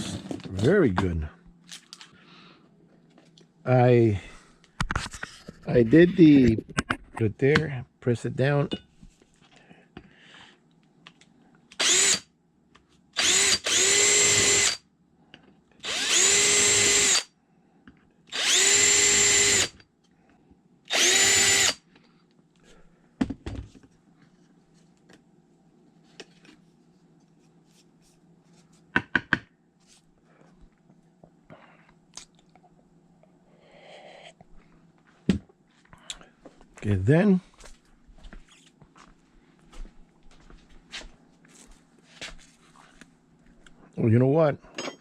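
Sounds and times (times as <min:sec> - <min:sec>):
power drill whining: 0:11.8 - 0:12.2, 0:13.2 - 0:14.8, 0:15.8 - 0:17.3, 0:18.3 - 0:19.8, 0:20.9 - 0:21.8.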